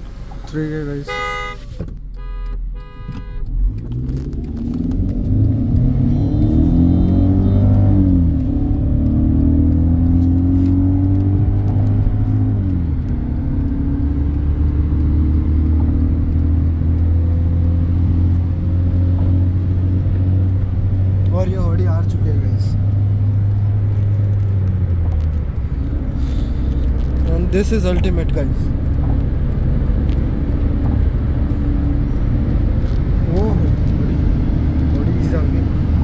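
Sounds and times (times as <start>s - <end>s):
car engine accelerating: 0.0s - 36.0s
car horn beeps: 1.0s - 3.6s.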